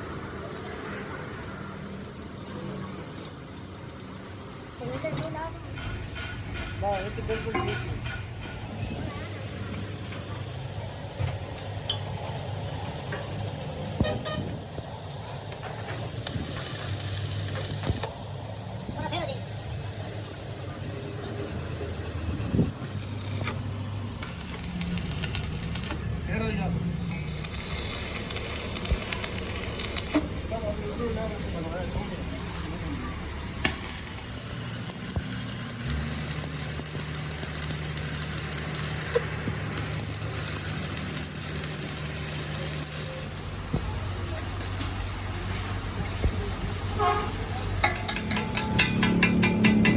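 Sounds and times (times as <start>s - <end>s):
hiss: 12.6s - 18.1s, 33.7s - 43.8s
short horn toot: 14.0s - 14.6s
vehicle engine running: 22.4s - 47.0s.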